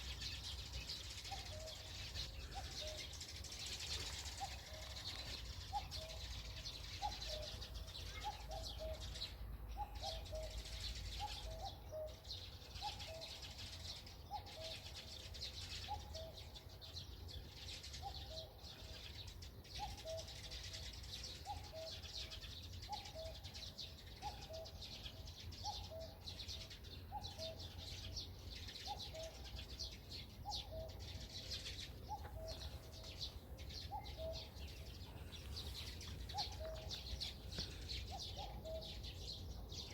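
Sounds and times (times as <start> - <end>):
small birds chirping: 0.0 - 39.9
cuckoo calling: 1.1 - 12.2, 19.8 - 20.6, 21.4 - 23.6, 24.2 - 28.1, 28.8 - 39.9.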